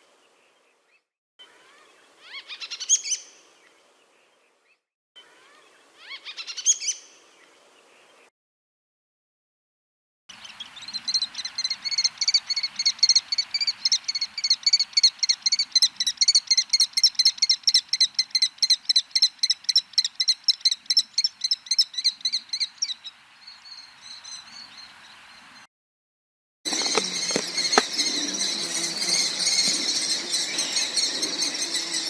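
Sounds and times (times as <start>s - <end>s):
bird of prey calling: 2.2s - 3.4s, 10.5s - 23.1s, 26.7s - 32.0s.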